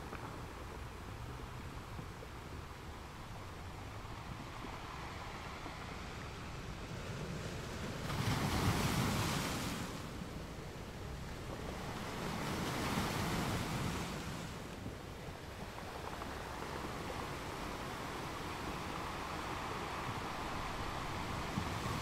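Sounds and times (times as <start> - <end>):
car road and wind noise: 0.0 - 8.2, 13.9 - 22.0.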